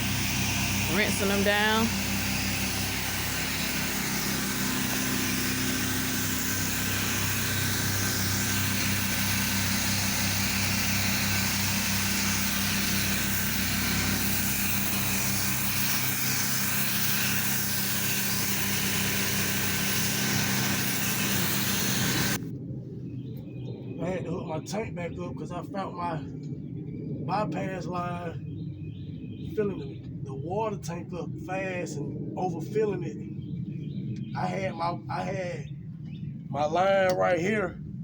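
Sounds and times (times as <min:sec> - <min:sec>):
high-pressure water spray hissing: 0:00.0 - 0:22.4
small engine running: 0:00.0 - 0:22.4.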